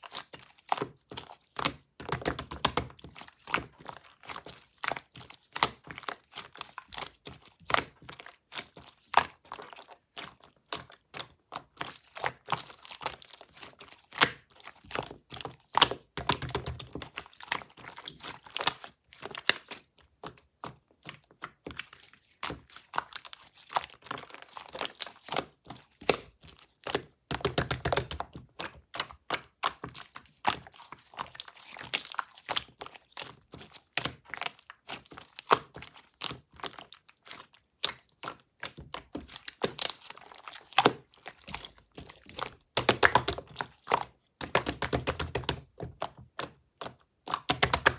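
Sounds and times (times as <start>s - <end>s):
slime clicking and squishing: 0.0s - 47.9s.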